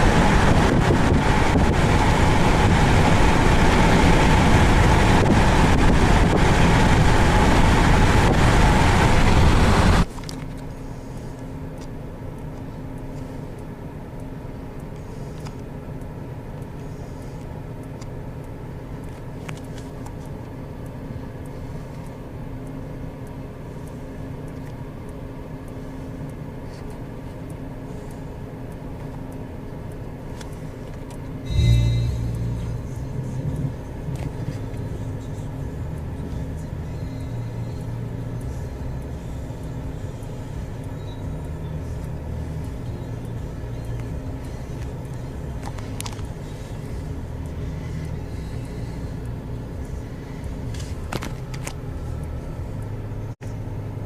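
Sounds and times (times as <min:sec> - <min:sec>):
storm wind on microphone: 0:00.0 - 0:10.0
quiet steady hum: 0:10.0 - 0:54.0.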